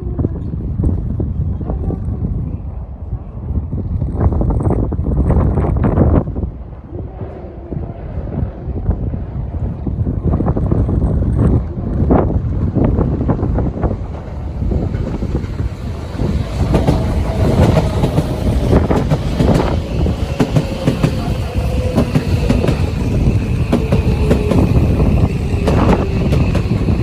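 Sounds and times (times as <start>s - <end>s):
wind rumbling on microphone: 0.0s - 27.0s
electric train braking to a stop: 14.2s - 27.0s.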